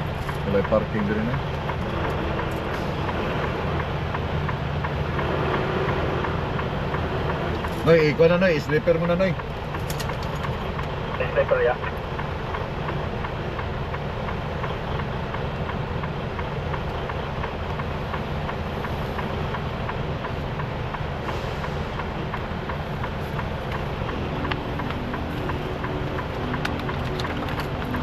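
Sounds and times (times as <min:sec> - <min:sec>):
diesel engine humming: 0:00.0 - 0:28.0
faint regular ticking: 0:00.1 - 0:28.0
higher hum: 0:21.7 - 0:28.0.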